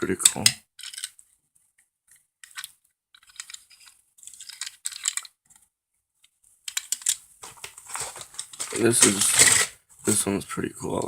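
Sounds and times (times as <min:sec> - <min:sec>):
plastic toys clicking and clattering: 0:00.1 - 0:01.2, 0:02.4 - 0:05.6, 0:06.7 - 0:09.7.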